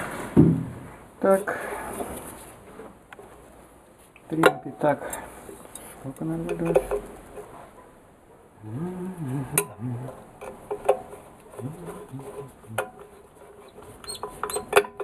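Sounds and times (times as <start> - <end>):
man humming or grunting: 8.6 - 10.3, 11.6 - 13.0.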